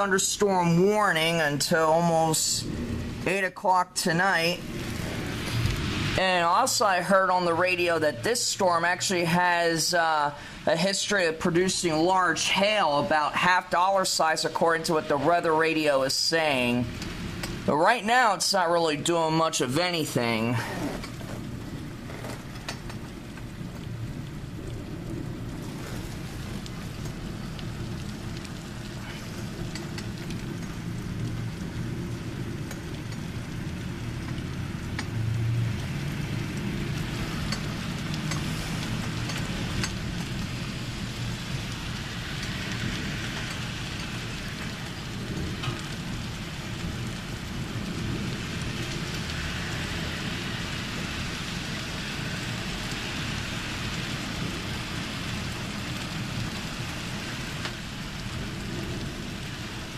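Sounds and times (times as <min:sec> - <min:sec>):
rain falling steadily: 0:00.0 - 0:59.9
low rumble of thunder: 0:02.3 - 0:03.5, 0:04.4 - 0:09.0, 0:20.5 - 0:59.9.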